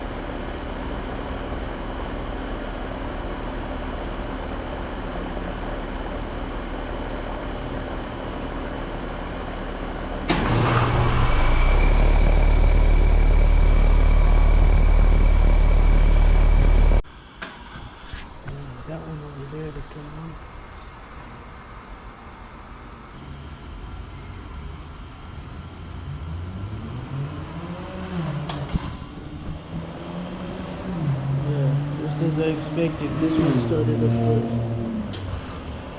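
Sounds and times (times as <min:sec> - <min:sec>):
condenser humming with high whine: 0:00.0 - 0:10.8, 0:12.4 - 0:25.8
condenser unit starting up: 0:10.2 - 0:17.0.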